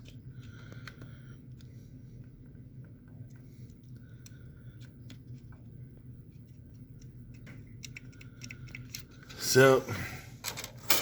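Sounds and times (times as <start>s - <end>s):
steady low hum: 0.0s - 11.0s
small parts and tools clicking: 6.3s - 9.4s.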